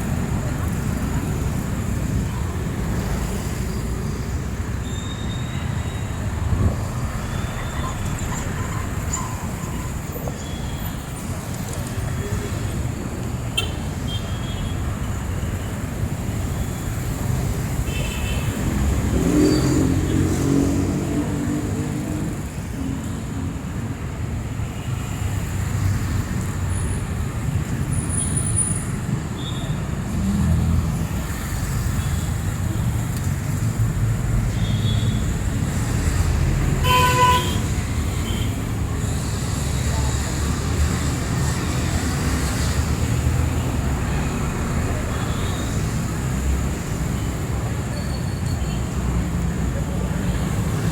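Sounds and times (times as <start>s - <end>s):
passing vehicles rumbling: 0.0s - 14.0s, 14.7s - 50.9s
vehicle horn honking: 36.8s - 38.5s.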